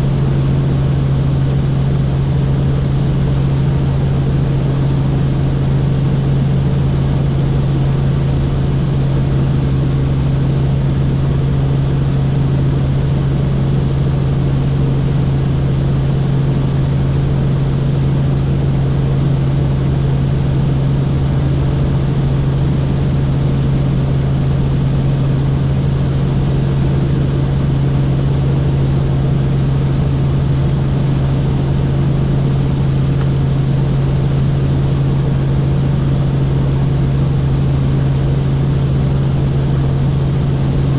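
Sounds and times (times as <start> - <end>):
helicopter engine and rotor drone: 0.0 - 40.9.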